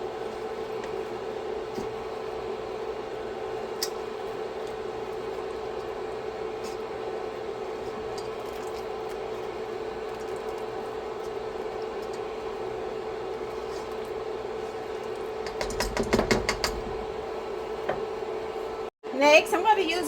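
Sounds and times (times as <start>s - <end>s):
steady hum: 0.0s - 20.0s
cooking utensils clicking and knocking: 15.4s - 17.1s.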